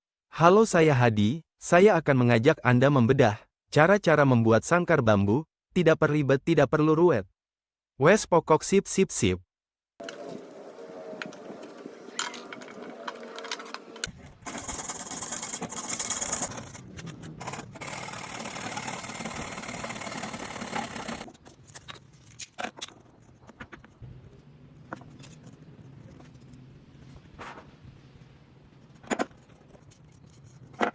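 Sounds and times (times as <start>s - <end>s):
small electric power tool running: 14.4s - 16.8s, 17.4s - 21.3s.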